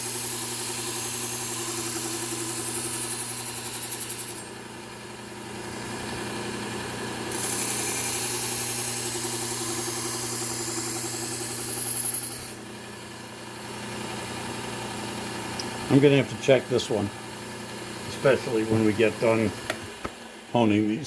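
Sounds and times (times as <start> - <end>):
knife grinding on sander belt: 0.0 - 4.5, 7.3 - 12.6
belt sander humming: 0.0 - 12.8, 17.9 - 20.4.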